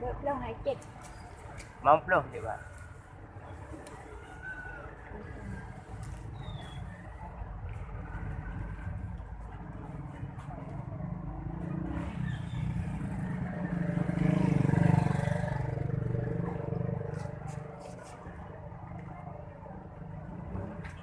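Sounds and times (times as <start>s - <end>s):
vehicle passing by: 7.8s - 21.0s.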